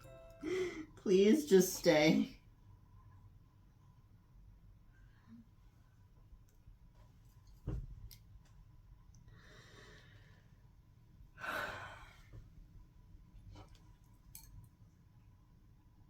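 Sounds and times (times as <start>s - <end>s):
person breathing in: 0.4s - 0.9s, 11.4s - 12.3s
person sighing: 0.4s - 1.0s, 11.4s - 12.2s.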